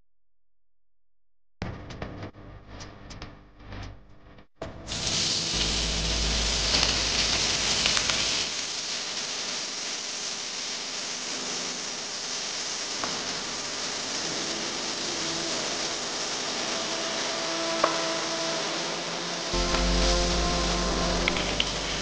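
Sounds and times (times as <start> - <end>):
potatoes sizzling in oil: 4.9 - 22.0.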